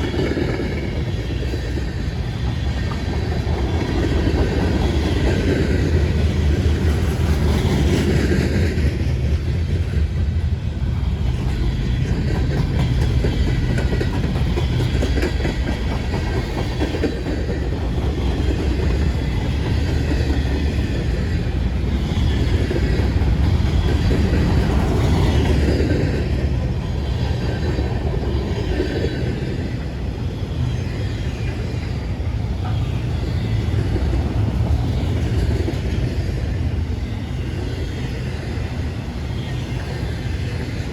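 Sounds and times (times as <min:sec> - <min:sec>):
wheels clicking over rail joints: 0:00.0 - 0:29.6
freight train cars rumbling: 0:00.0 - 0:40.9.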